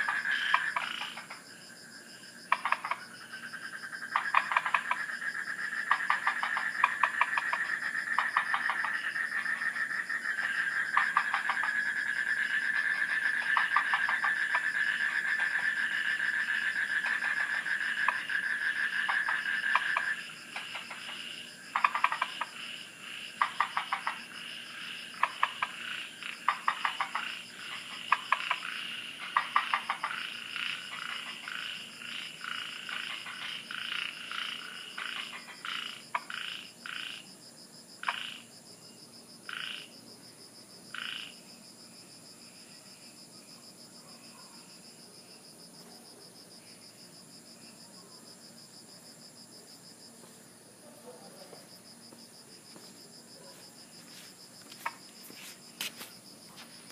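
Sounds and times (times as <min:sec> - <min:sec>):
frogs calling: 0:00.0 - 0:37.4, 0:38.0 - 0:38.6, 0:39.4 - 0:40.0, 0:40.9 - 0:41.6, 0:50.7 - 0:56.9
insects droning: 0:00.0 - 0:56.9.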